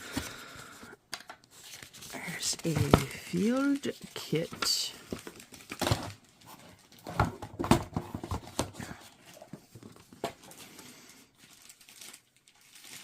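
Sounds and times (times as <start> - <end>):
items and packaging knocking: 2.5 - 10.5.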